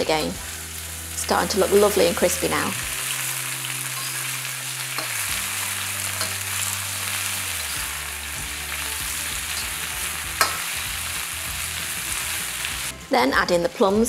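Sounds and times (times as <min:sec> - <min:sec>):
chicken sizzling in oil: 0:00.0 - 0:12.9
spatula clinking on wok: 0:09.5 - 0:10.7.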